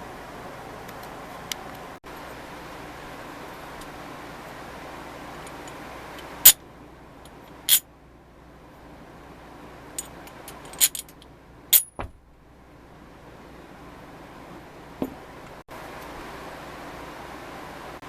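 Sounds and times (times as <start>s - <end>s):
metal tool parts clinking: 10.0s - 12.0s
dull knock: 12.0s - 12.2s.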